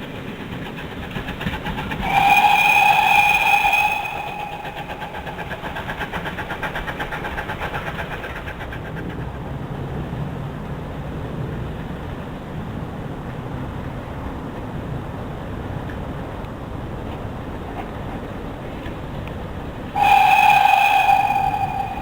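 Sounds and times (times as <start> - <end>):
steam train chugging: 0.0 - 9.4, 20.0 - 22.0.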